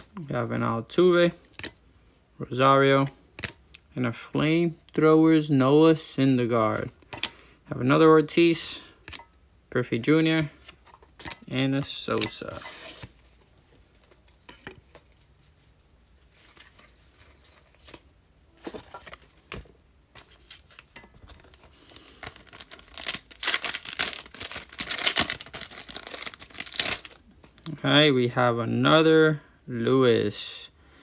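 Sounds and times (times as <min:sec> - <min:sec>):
wrapper tearing and crinkling: 0:20.4 - 0:27.2.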